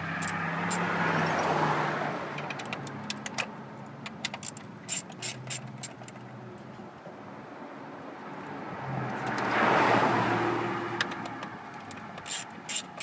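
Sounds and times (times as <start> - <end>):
hand tool clicking on screws: 0.0 - 1.5, 2.4 - 6.2, 11.0 - 13.0
vehicle passing by: 0.0 - 2.4, 7.5 - 11.6.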